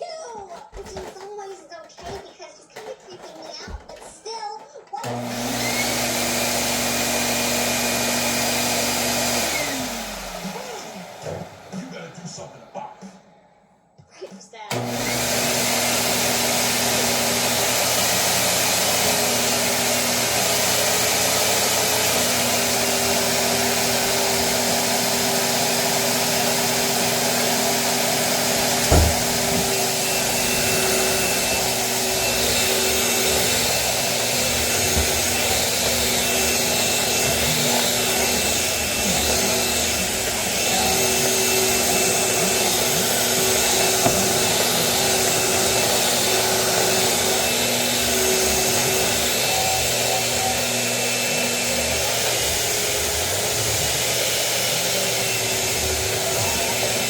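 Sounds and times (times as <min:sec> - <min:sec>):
vacuum cleaner running: 0:00.8 - 0:04.0, 0:05.0 - 0:12.9, 0:14.6 - 0:57.0
sharp thump: 0:28.8 - 0:29.8.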